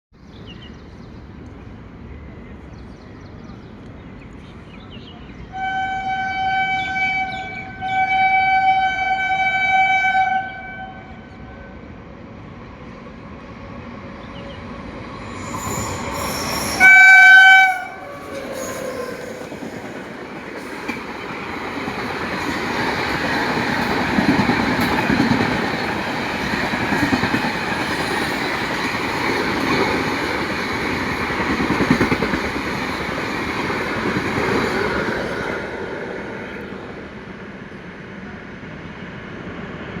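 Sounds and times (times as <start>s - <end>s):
train horn blasts: 5.5s - 11.7s, 16.6s - 18.4s
train rumbling and clattering past: 8.8s - 40.0s.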